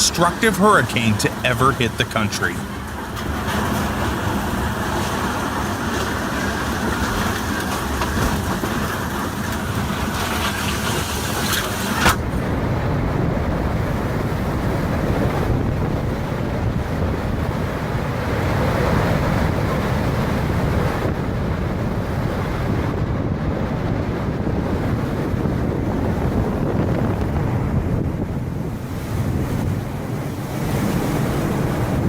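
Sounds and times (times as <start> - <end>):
wind buffeting microphone: 12.2 - 32.0.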